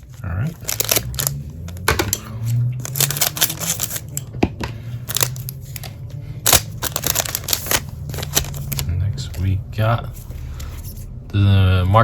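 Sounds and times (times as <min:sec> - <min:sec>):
low steady hum: 0:00.0 - 0:12.0
trading cards clicking: 0:02.8 - 0:04.2, 0:05.1 - 0:09.4.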